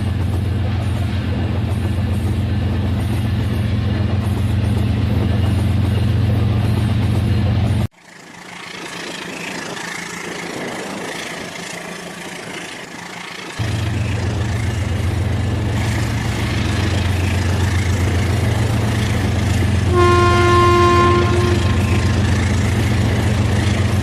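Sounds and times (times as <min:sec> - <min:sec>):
toy train horn toot: 0:19.9 - 0:22.2.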